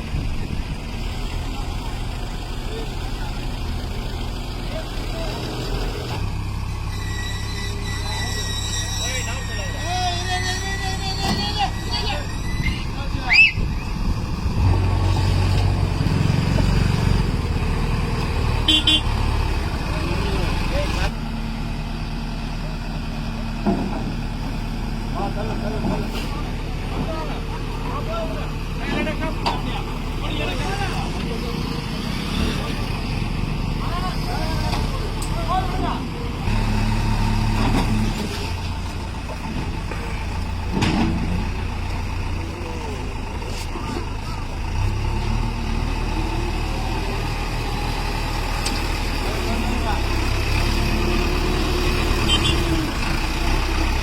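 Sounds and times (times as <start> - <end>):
heavy vehicle engine rumbling: 0.0 - 54.0
horn toots: 18.6 - 19.2, 52.2 - 52.9.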